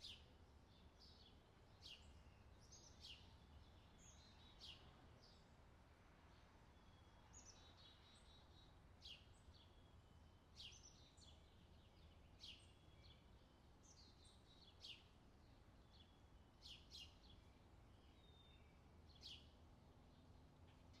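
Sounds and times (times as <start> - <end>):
small birds chirping: 0.0 - 5.5, 6.3 - 21.0.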